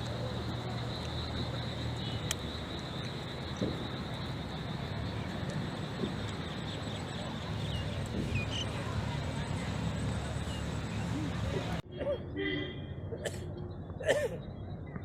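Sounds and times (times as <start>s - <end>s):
floodwater rushing: 0.0s - 11.8s.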